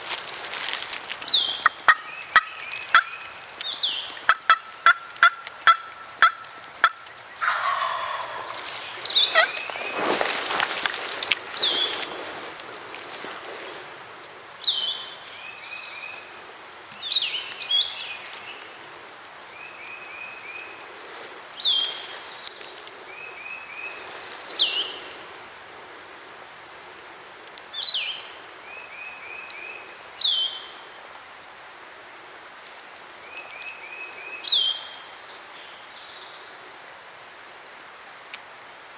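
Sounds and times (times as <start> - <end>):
turkey gobbling: 1.6 - 3.2, 4.3 - 9.7.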